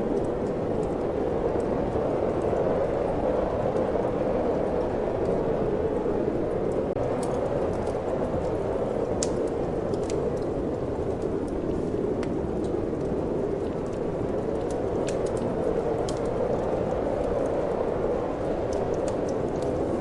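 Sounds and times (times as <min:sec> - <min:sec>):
rushing wind: 0:00.0 - 0:20.0
wood fire crackling: 0:00.0 - 0:20.0.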